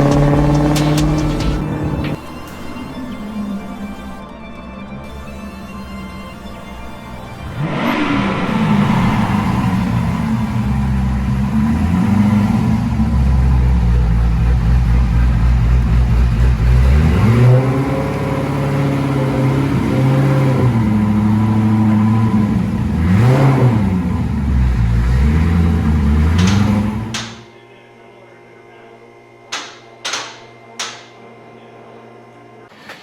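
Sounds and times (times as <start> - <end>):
car engine revving under load: 0.0 - 2.2, 7.3 - 27.5.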